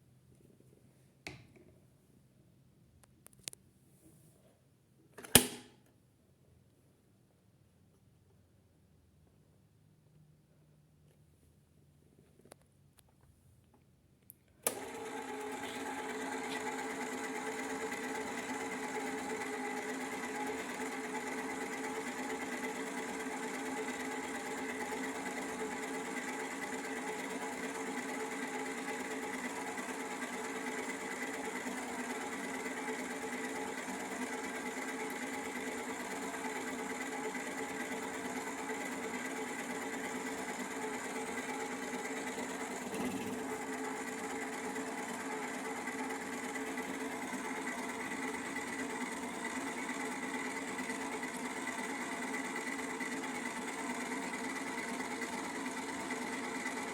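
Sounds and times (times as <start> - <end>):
switch click: 5.2 - 5.7.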